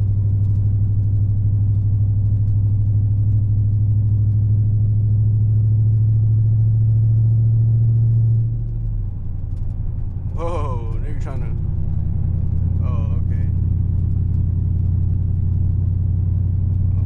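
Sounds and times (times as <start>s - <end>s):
car engine droning from inside: 0.0s - 17.0s.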